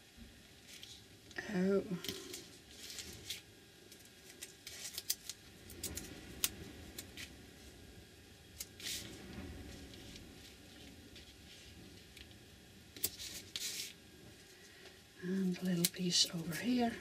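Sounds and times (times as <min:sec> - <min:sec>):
tape clicks and crackles: 0:02.0 - 0:07.3.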